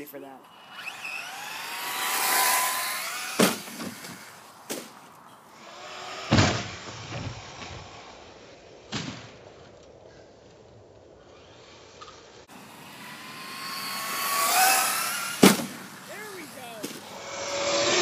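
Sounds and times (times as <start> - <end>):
electric motor noise: 0.4 - 4.6, 5.6 - 8.0, 11.3 - 18.0
rc truck thudding down: 0.8 - 5.0, 6.0 - 8.0, 12.0 - 16.0, 16.8 - 18.0.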